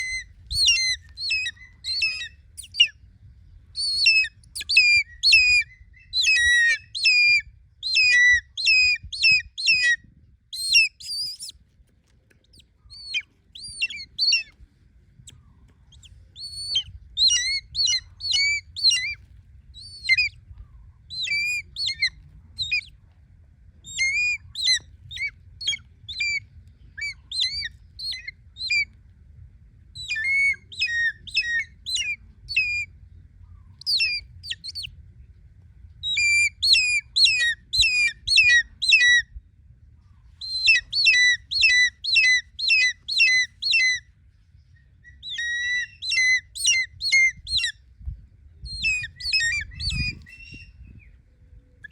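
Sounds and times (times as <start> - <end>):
hawk-eagle shrill squawking calls: 0.0 - 2.9, 12.5 - 14.5, 15.9 - 19.2, 21.2 - 22.9, 30.0 - 32.8, 33.8 - 34.9, 40.4 - 44.0, 45.2 - 47.7, 48.8 - 50.8.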